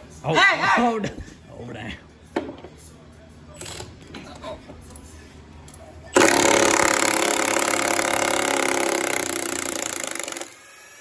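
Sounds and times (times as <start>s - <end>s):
electric drill boring into metal: 6.2s - 11.0s.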